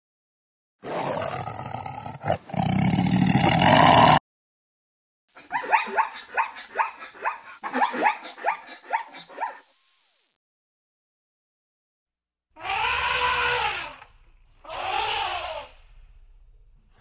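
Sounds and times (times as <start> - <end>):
lion roaring: 0.8 - 4.2
zebras barking yelps: 5.4 - 9.7, 12.6 - 15.8.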